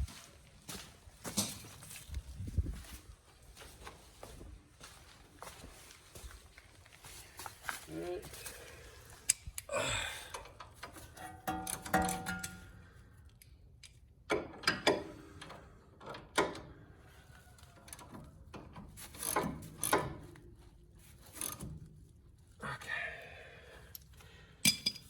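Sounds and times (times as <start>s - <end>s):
ratchet clicking on a bolt: 19.1s - 20.2s, 21.4s - 21.7s.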